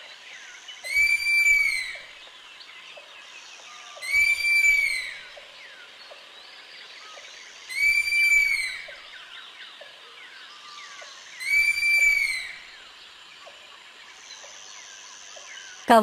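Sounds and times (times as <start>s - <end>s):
sloth calling: 0.8s - 2.0s, 4.0s - 5.3s, 7.7s - 8.9s, 11.4s - 12.7s.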